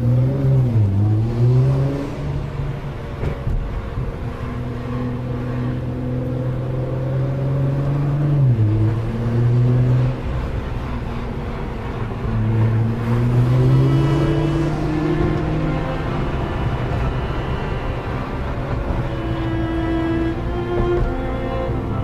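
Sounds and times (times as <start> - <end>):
car engine running: 10.1 - 22.0.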